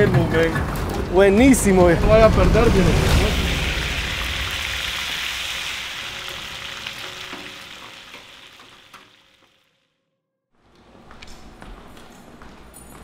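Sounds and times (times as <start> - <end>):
fish sizzling in hot oil: 3.4 - 9.8.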